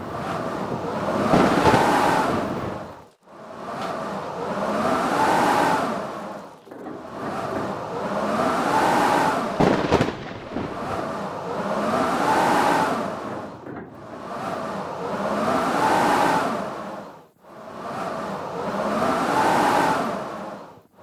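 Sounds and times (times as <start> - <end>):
blizzard wind howling: 0.0 - 20.9
sharp crack: 0.8 - 3.1, 9.6 - 11.1.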